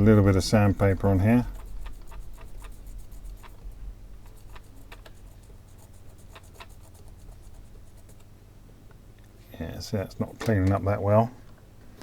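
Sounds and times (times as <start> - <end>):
low steady hum: 0.0 - 12.0
cotton bud scratching a pad: 0.6 - 8.3.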